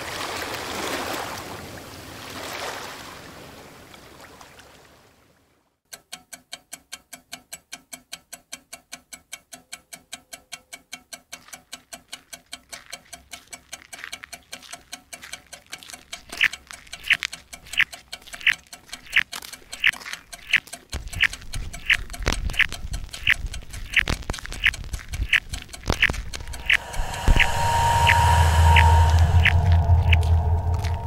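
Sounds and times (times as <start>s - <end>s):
fast ticking pulse: 6.0s - 31.0s
faint low drone: 26.3s - 31.0s
sharp strikes: 26.4s - 31.0s.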